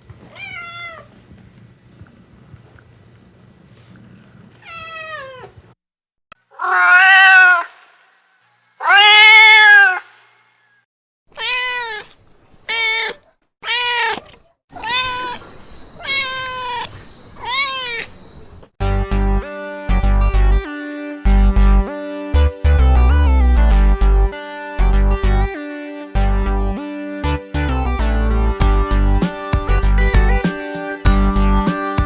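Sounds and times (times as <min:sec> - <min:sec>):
cats meowing: 0:00.3 - 0:01.2, 0:04.6 - 0:05.6, 0:06.6 - 0:07.6, 0:11.3 - 0:18.1.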